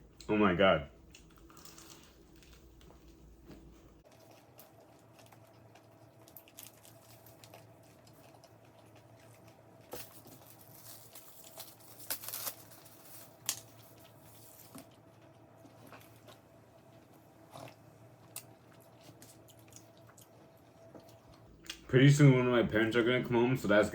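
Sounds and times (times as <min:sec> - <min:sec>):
food packaging crinkling and tearing: 0:01.2 - 0:02.9, 0:04.1 - 0:15.1.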